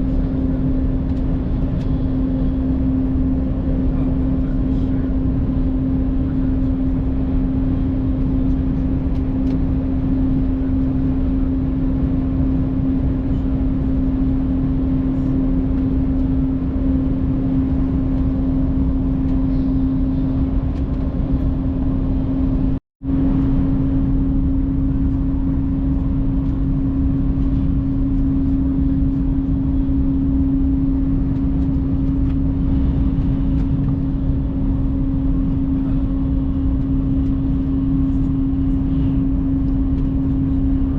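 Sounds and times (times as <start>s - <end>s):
droning hum: 0.0s - 40.9s
train cabin rumble: 0.0s - 40.9s.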